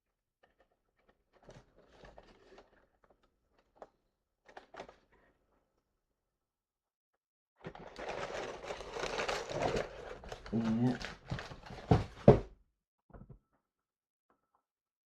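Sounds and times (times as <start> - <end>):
plastic figure and cloth rustling: 0.3 - 5.6, 7.6 - 12.5.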